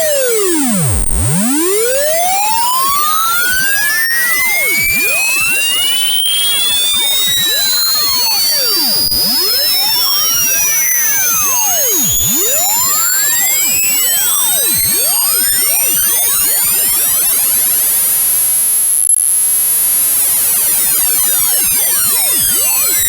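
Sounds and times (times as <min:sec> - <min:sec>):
electronic tone sweeping upward: 0:00.0 - 0:17.8, 0:20.8 - 0:23.0
piercing tones rising and falling: 0:00.2 - 0:13.8.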